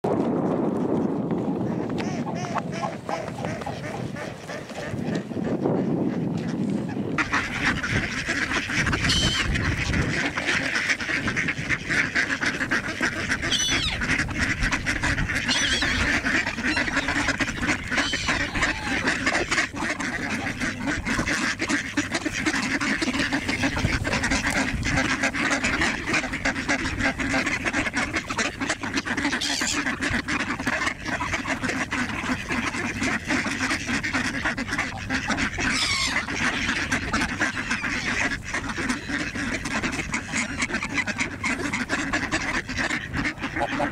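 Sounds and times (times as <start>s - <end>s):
ducks and geese quacking and honking: 0.1s - 43.9s
high bird calls: 9.0s - 9.5s.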